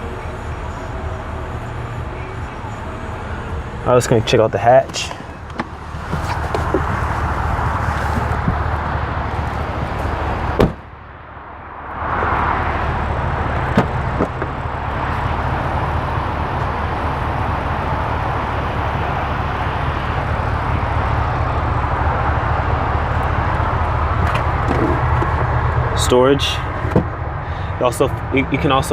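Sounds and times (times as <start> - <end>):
car door shutting: 4.7 - 8.8, 10.5 - 10.9, 13.6 - 14.6.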